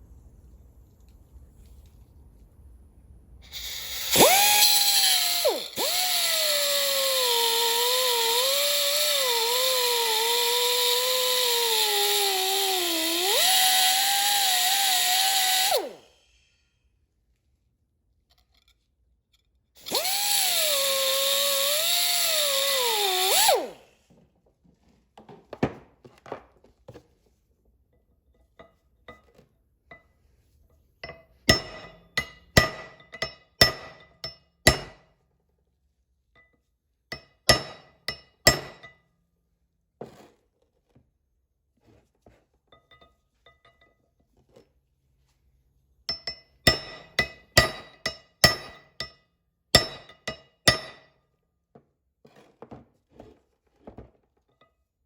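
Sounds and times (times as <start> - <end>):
cutoff wheel cutting steel: 3.5 - 16.3, 19.8 - 24.0.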